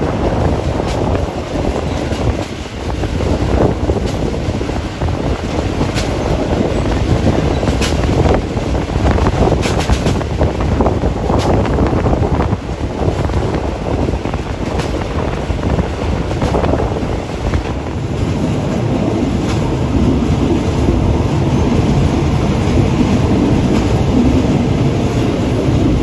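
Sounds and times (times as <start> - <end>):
train carriage rumbling on rails: 0.0 - 26.0
wheels clicking on track: 0.0 - 26.0
wind buffeting microphone: 0.0 - 26.0.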